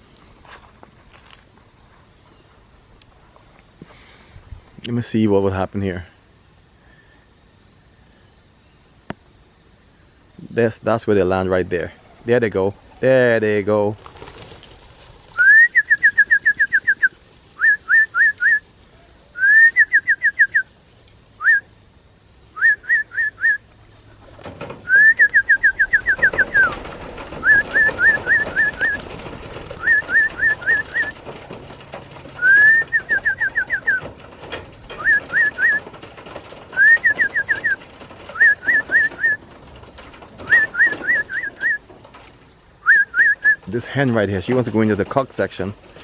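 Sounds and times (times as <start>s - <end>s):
clear whistled notes: 19.4s - 20.7s, 24.8s - 26.8s, 27.4s - 29.0s, 29.8s - 31.2s, 32.4s - 34.1s, 34.9s - 35.8s, 36.7s - 39.4s, 40.4s - 41.8s, 42.8s - 43.6s.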